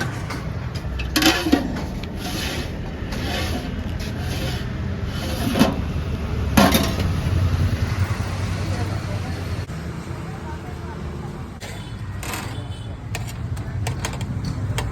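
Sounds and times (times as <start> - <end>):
road traffic rumble: 0.0 - 14.9
scraping strokes: 1.0 - 6.0.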